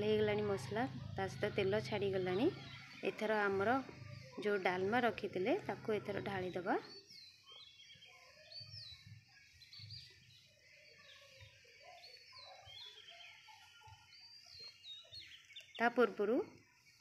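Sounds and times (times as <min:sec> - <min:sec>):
faint bird chirps: 0:01.0 - 0:17.0.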